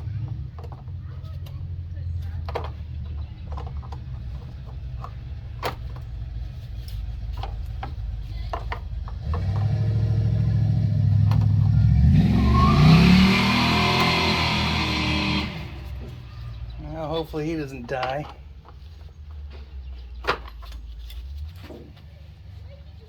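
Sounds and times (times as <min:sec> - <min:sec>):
vehicle engine revving: 0:00.0 - 0:02.0, 0:08.9 - 0:16.8.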